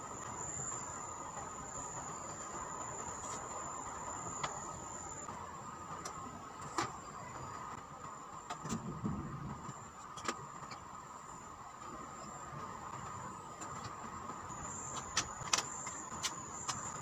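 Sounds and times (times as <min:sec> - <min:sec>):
insect chirring: 0:00.0 - 0:05.3.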